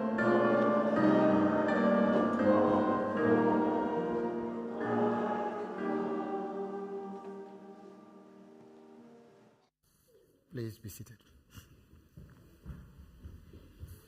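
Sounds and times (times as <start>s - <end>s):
congregation singing a hymn: 0.0s - 9.4s
instrumental accompaniment: 0.0s - 9.7s.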